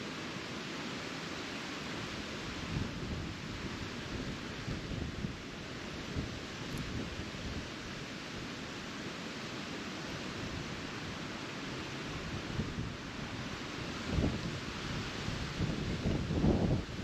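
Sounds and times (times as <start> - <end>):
wind blowing: 12.2 - 17.0
wind buffeting on microphone: 14.0 - 17.0.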